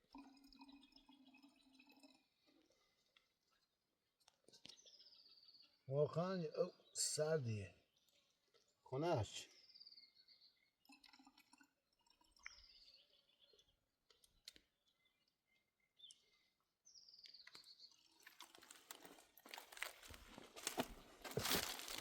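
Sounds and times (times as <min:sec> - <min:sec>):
crunching and rustling: 0:18.2 - 0:22.0.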